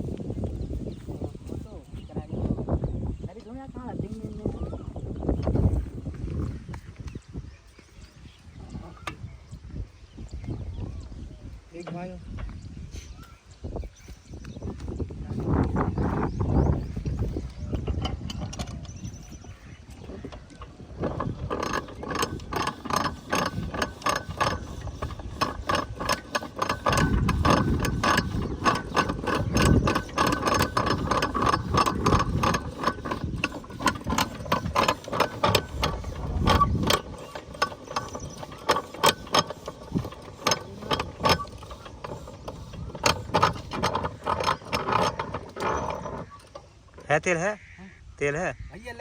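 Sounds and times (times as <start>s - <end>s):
rhythmic mechanical clicking and clanking: 14.8s - 47.0s
diesel engine turning over: 15.7s - 47.1s.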